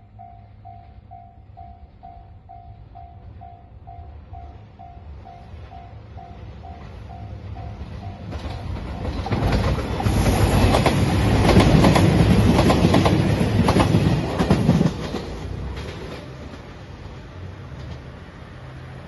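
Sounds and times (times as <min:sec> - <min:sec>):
distant train: 0:00.0 - 0:19.0
train passing: 0:00.0 - 0:19.0
wheels clacking over rail joints: 0:07.6 - 0:16.9.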